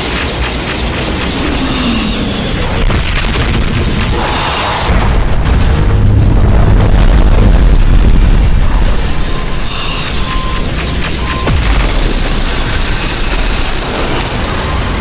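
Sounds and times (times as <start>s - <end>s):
sharp hits: 0.6s - 8.7s
explosion booms: 2.6s - 9.6s, 11.3s - 15.0s.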